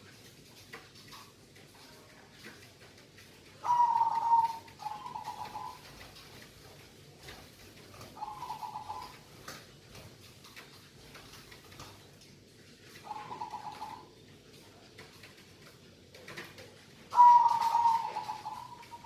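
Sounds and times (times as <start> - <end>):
dove cooing: 3.6 - 6.3, 8.0 - 9.3, 12.8 - 14.2, 17.0 - 19.0.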